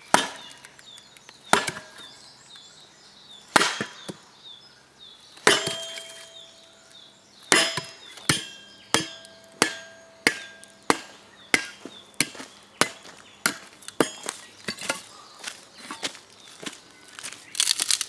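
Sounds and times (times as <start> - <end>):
chopping blows with short ring: 5.5 - 6.6, 7.5 - 13.0.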